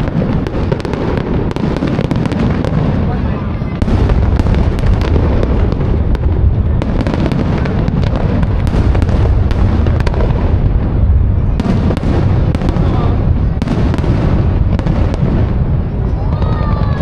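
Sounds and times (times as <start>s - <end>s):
deep firework booms: 0.0s - 17.0s
firework cracks and pops: 0.0s - 17.0s.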